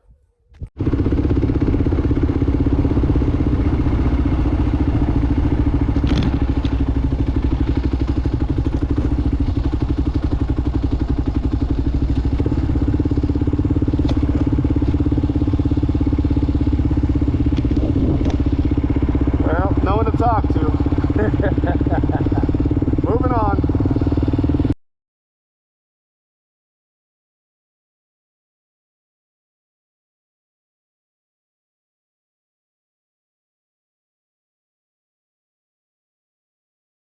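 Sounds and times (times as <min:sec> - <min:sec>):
motorcycle engine running: 0:00.6 - 0:24.8.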